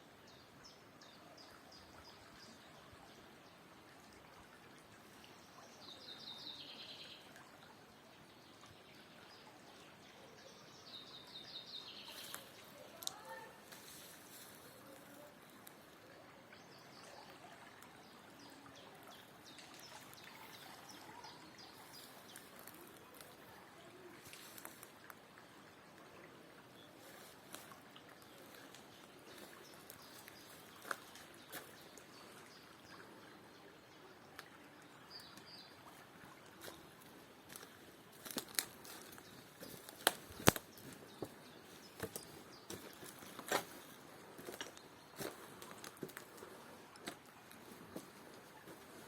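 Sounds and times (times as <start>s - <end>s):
faint outdoor background: 0.0s - 49.0s
river water flowing: 0.0s - 49.0s
sharp clicks and crackles: 39.9s - 40.8s.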